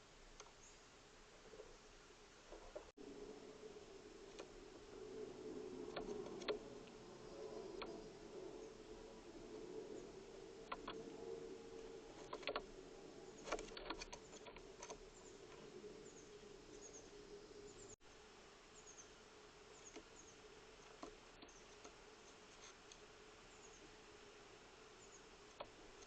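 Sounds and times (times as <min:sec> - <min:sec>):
low steady hum: 0:00.0 - 0:26.0
faint high bird chirps: 0:13.3 - 0:18.0, 0:18.7 - 0:22.4, 0:25.0 - 0:25.3.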